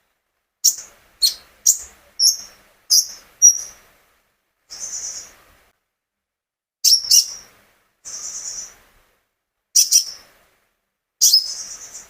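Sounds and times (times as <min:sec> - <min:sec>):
songbird singing: 0:00.6 - 0:03.9, 0:04.7 - 0:05.4, 0:06.8 - 0:07.5, 0:08.1 - 0:08.8, 0:09.8 - 0:10.3, 0:11.2 - 0:12.0.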